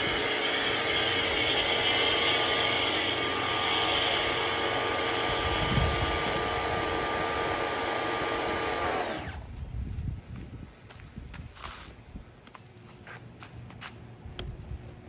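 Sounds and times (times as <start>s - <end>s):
pressure washer spraying: 0.0s - 9.4s.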